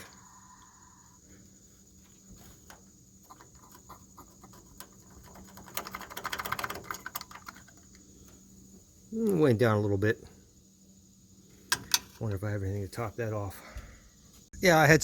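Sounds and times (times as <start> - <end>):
crickets chirping: 0.0 - 15.0
rapid clicking and rattling: 3.2 - 8.0.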